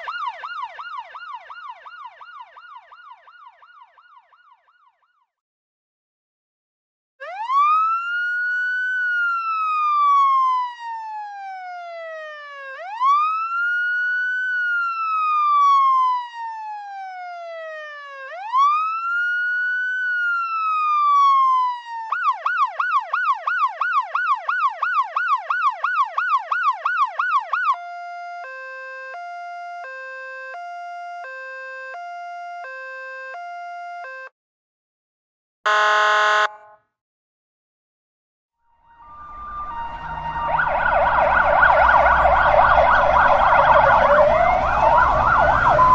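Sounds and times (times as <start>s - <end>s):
ambulance siren: 0.0s - 5.4s, 7.2s - 34.3s, 35.7s - 36.8s, 38.7s - 45.9s.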